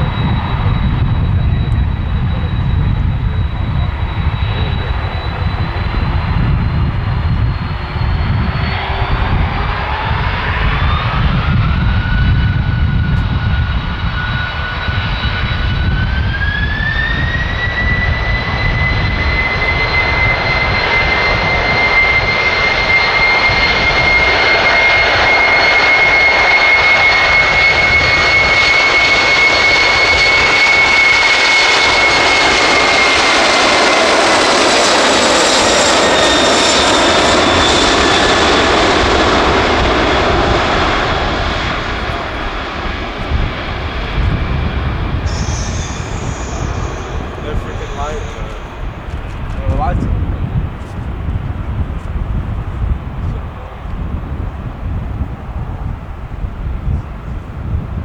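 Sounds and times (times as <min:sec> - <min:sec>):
low rumble: 0:00.0 - 0:24.2, 0:36.6 - 0:58.0
jet engines spooling up: 0:00.0 - 0:57.3.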